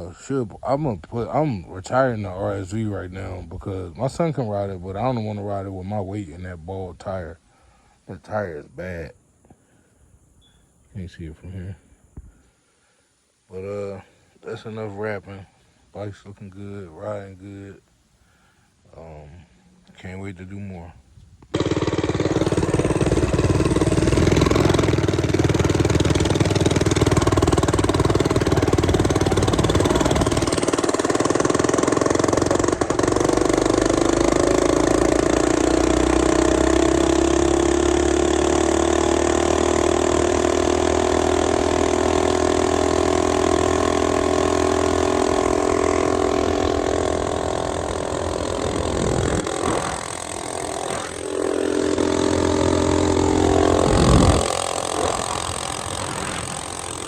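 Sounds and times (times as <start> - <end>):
mini bike engine revving: 21.5 - 57.0.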